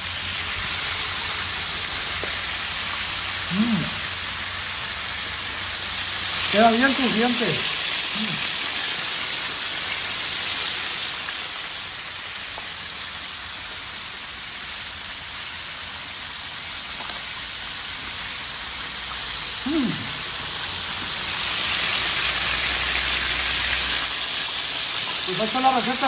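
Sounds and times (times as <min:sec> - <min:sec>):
chicken deep-frying in oil: 0:00.0 - 0:26.0.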